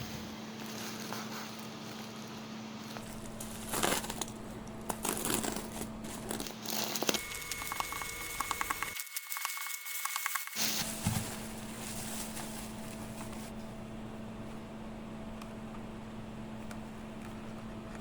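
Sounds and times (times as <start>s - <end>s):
plastic packaging crinkling: 0.5s - 13.6s.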